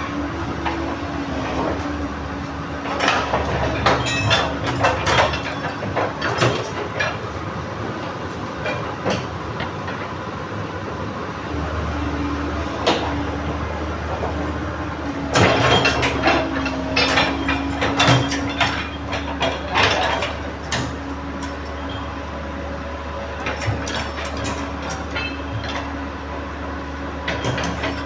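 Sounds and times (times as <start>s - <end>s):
excavator engine drone: 0.0s - 28.0s
metal track clanks: 2.8s - 7.3s, 15.2s - 22.3s, 23.3s - 26.1s, 27.2s - 28.0s.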